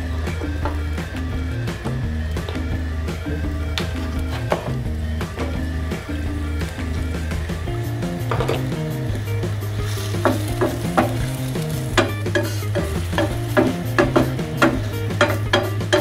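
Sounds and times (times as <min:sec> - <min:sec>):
background music: 0:00.0 - 0:16.0
spoon knocking against pan: 0:10.2 - 0:11.2, 0:12.0 - 0:16.0.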